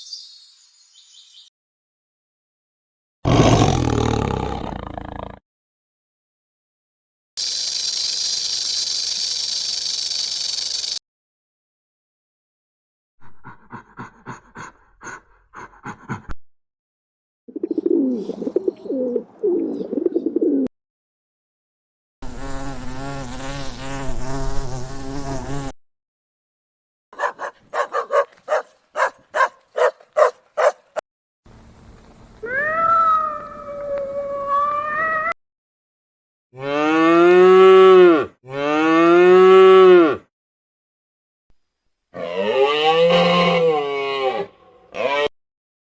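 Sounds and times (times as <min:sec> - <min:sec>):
farm animal calls: 0:31.5 - 0:35.3.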